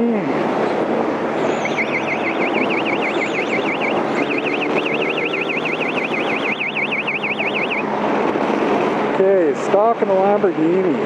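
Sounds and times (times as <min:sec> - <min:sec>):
motorcycle running: 0:00.0 - 0:09.2
warbling electronic alarm tone: 0:01.4 - 0:07.9.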